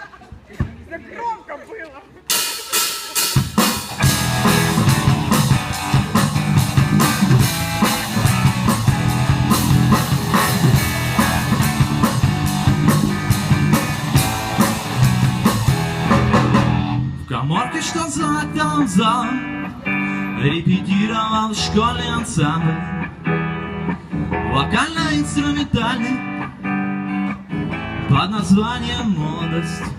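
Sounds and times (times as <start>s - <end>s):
drum kit beat: 2.3s - 18.0s
live rock band playing: 2.3s - 29.9s.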